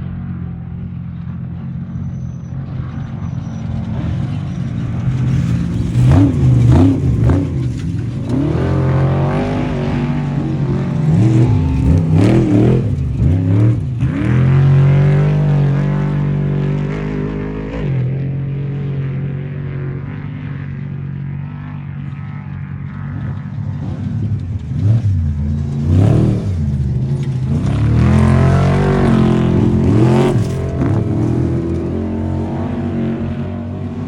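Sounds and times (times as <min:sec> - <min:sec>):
race vehicle engine revving: 0:02.7 - 0:19.3, 0:23.7 - 0:34.0.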